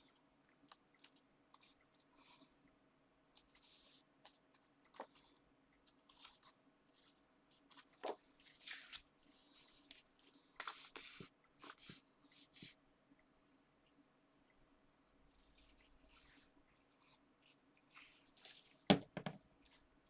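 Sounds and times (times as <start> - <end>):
paper and card rustling: 3.4 - 12.7.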